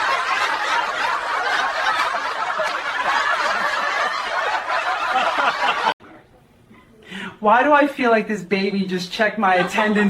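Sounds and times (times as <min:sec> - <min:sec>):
group of people laughing: 0:00.0 - 0:06.0.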